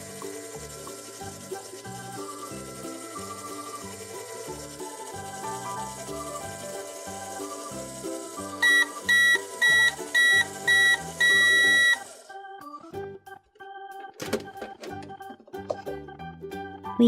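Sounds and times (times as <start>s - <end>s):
background music: 0.0s - 17.0s
microwave timer beeping: 0.4s - 12.8s.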